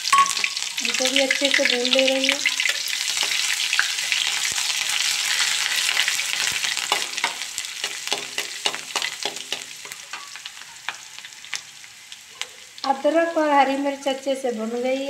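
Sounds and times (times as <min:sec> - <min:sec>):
spices sizzling in hot oil: 0:00.0 - 0:15.0
metal spatula scraping a pan: 0:02.7 - 0:11.1.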